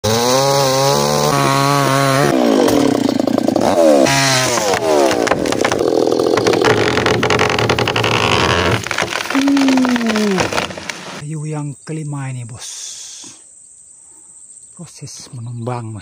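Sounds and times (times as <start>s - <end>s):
chainsaw cutting wood: 0.0s - 11.2s.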